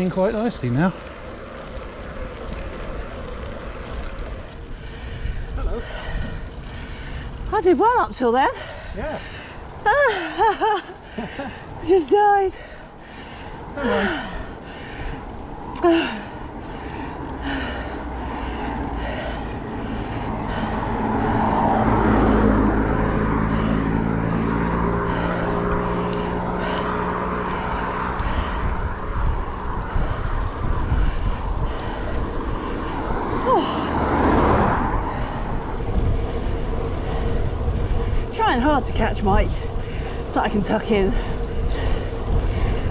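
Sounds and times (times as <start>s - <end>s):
motor vehicle passing: 0.0s - 42.9s
wind rushing over microphone: 0.0s - 42.9s.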